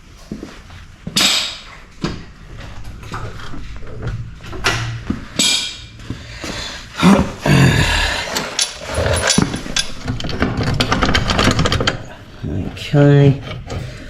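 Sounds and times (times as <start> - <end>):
metal clanks and knocks: 8.1 - 12.2.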